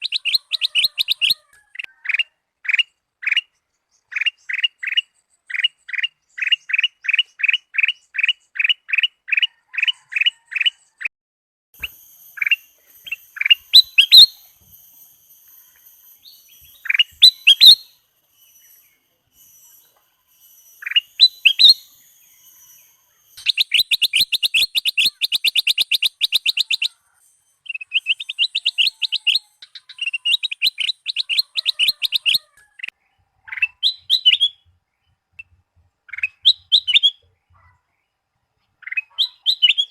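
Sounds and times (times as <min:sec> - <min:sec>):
bulbul singing: 0:00.0 - 0:09.5, 0:11.8 - 0:37.6, 0:38.7 - 0:39.9
faint high thin whistles: 0:11.8 - 0:25.1.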